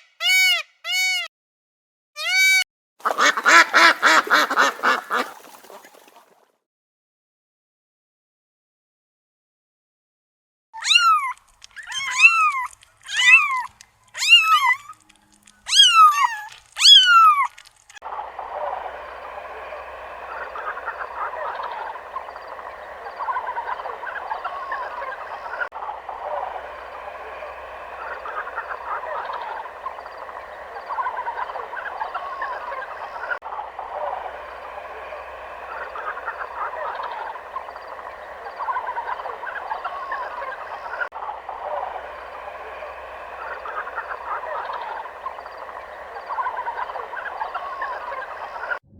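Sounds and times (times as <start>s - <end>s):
chorus of small animal calls: 2.2s - 6.2s, 10.8s - 48.8s
animal calling rising and falling: 10.8s - 15.0s, 15.6s - 17.5s, 18.1s - 48.8s.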